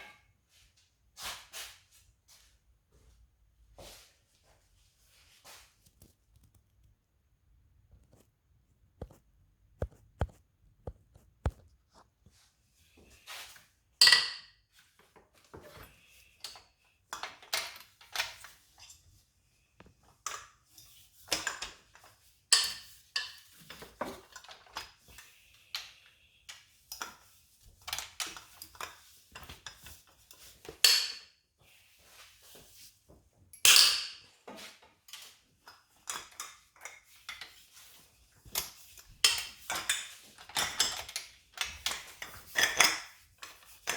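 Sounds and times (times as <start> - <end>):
metal tools clinking and clanking: 38.5 - 43.9.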